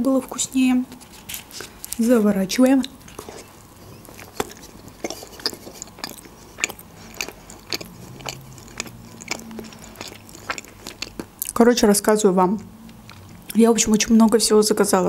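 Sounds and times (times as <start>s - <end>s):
wet chewing smacks: 2.8s - 11.6s
sharp little mouth clicks: 4.0s - 11.6s.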